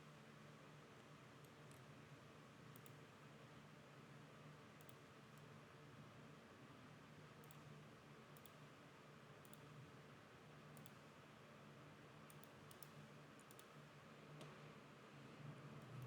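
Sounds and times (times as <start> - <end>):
computer mouse clicks: 2.7 - 3.0, 4.8 - 5.5, 7.4 - 7.7, 8.4 - 8.6, 9.4 - 9.8, 10.7 - 11.0, 12.2 - 13.8.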